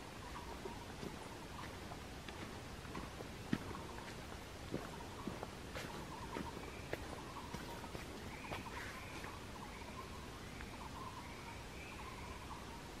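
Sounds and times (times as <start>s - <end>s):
footsteps on stone path: 0.0s - 9.4s
high arching bird chirp: 3.4s - 13.0s.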